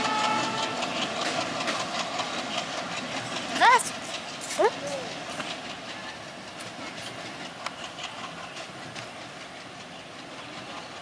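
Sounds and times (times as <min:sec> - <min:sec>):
train wheels rumbling on rails: 0:00.0 - 0:11.0
clicks at rail joints: 0:06.5 - 0:09.1.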